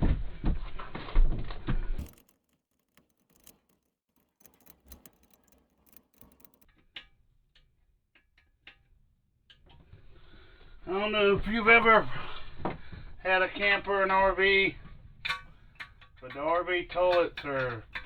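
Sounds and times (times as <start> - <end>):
wrench clicking: 2.0 - 6.7.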